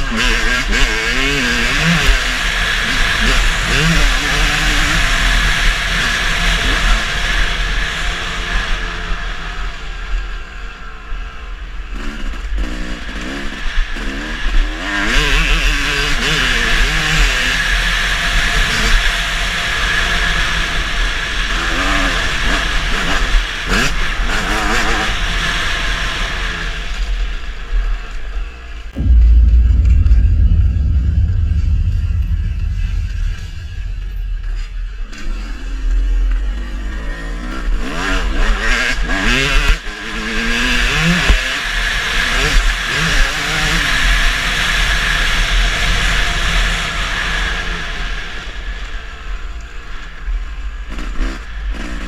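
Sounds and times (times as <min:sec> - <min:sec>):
loud low rumble: 0:29.0 - 0:35.1.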